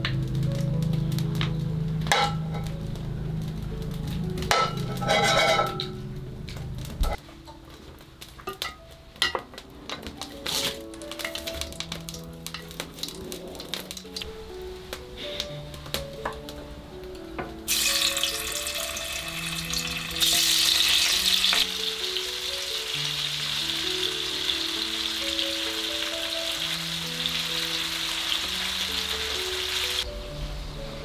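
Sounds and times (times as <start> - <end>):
tofu sizzling in hot oil: 17.7 - 30.0.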